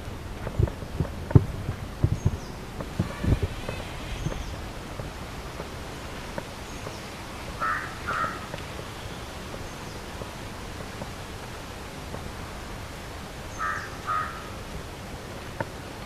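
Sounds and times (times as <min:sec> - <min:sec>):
outdoor background hiss: 0:00.0 - 0:16.0
crow cawing: 0:07.6 - 0:08.5, 0:13.5 - 0:14.6.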